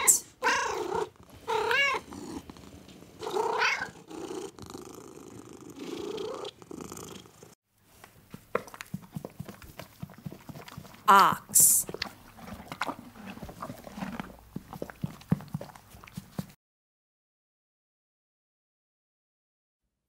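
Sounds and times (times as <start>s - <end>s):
cat meowing: 0.0s - 2.1s, 3.2s - 4.0s
cat purring: 0.0s - 7.6s.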